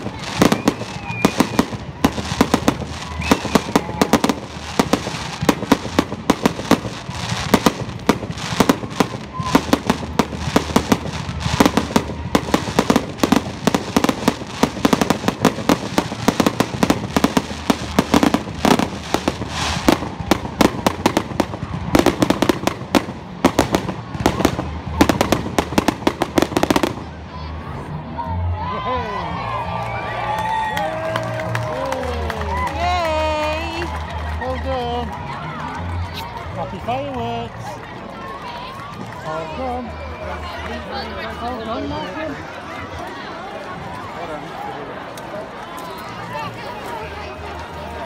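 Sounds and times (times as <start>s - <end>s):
firework bangs and crackles: 0.0s - 27.7s.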